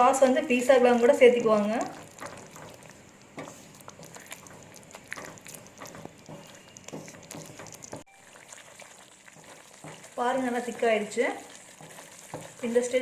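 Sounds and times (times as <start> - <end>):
sauce bubbling with soft pops: 0.5 - 13.0.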